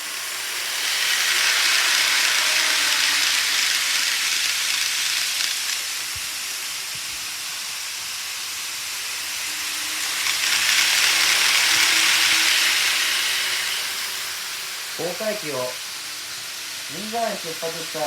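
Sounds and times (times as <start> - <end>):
model trains rolling on track: 0.0 - 18.0.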